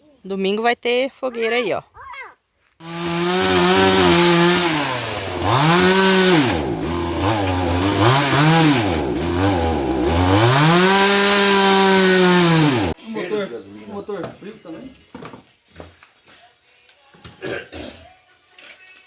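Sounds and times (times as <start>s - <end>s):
chainsaw engine revving: 2.8s - 13.0s.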